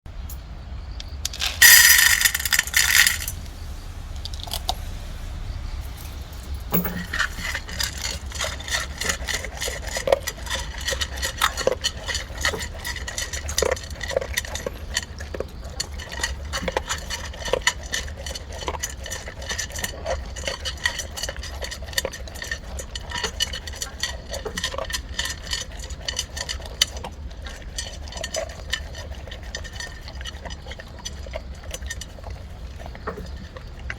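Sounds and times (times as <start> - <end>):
dog crunching kibble: 1.2 - 3.4, 6.8 - 33.9
loud clatter: 1.2 - 14.7
kibble clinking against bowl: 1.3 - 3.4, 6.7 - 33.9.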